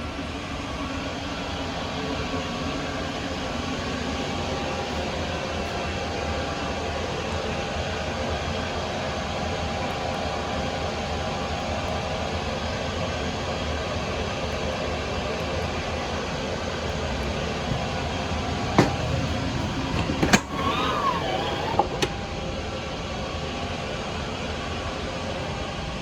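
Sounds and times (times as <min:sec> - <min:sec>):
airplane cabin noise: 0:16.8 - 0:22.4.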